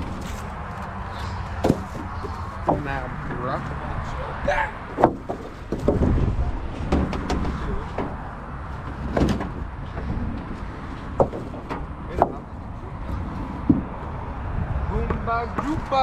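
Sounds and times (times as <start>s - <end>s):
sharp knocks and thuds: 1.2s - 3.5s, 4.9s - 8.2s, 8.8s - 10.1s, 11.1s - 12.6s, 13.6s - 14.0s
steady low rumble: 5.7s - 15.1s.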